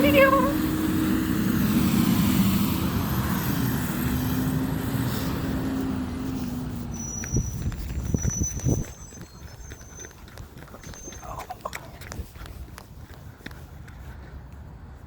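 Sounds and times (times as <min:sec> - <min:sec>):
garbage truck engine drone: 0:00.0 - 0:10.4.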